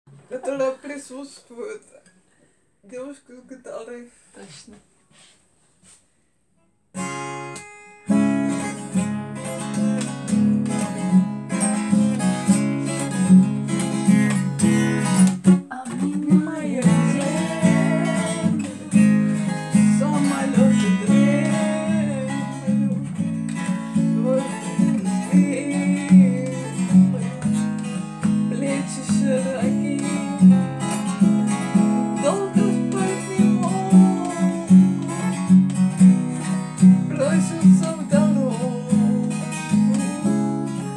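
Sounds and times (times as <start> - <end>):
acoustic guitar strumming: 6.9 - 40.9
girl singing: 15.6 - 23.2, 24.0 - 31.3, 32.0 - 35.6, 37.0 - 40.9.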